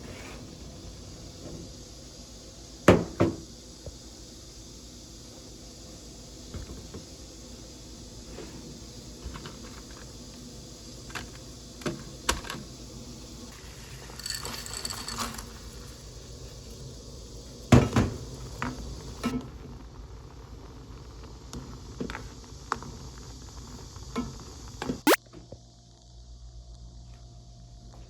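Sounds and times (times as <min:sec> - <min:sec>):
utensils and dishes clicking: 0:14.0 - 0:15.6.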